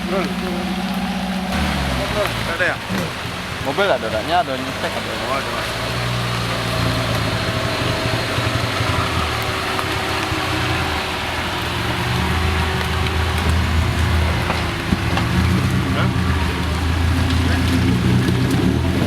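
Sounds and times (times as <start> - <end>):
off-road vehicle engine: 0.0 - 19.0.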